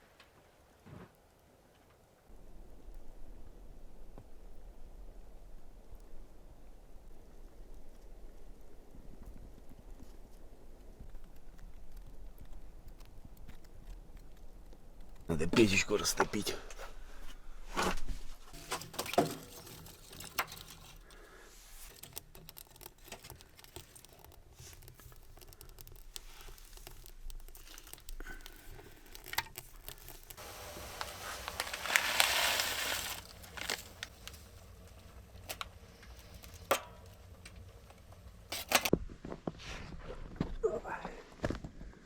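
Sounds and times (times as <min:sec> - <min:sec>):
wood being handled: 0:17.7 - 0:35.0
rustling hiss: 0:23.7 - 0:37.6.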